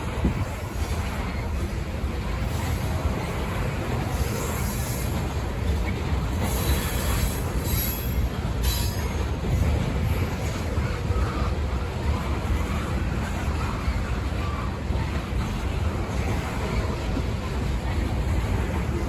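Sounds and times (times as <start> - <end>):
train cars rumbling on rails: 0.0 - 19.0
wheels squealing: 2.4 - 11.5.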